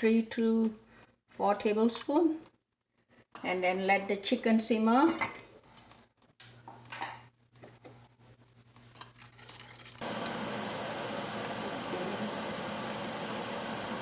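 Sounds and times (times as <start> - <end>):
machine hum and hiss: 10.0 - 14.0.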